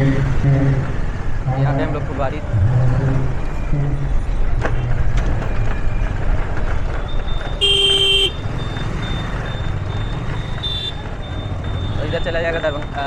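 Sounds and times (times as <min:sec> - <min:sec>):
motorcycle engine and road noise: 0:00.0 - 0:13.0
vehicle horn honk: 0:07.6 - 0:08.4.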